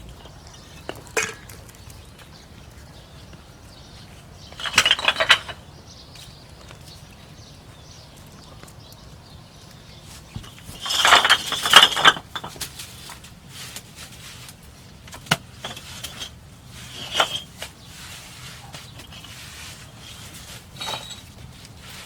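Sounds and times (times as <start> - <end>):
hard objects clinking and scraping: 0.0 - 5.7, 10.3 - 22.0.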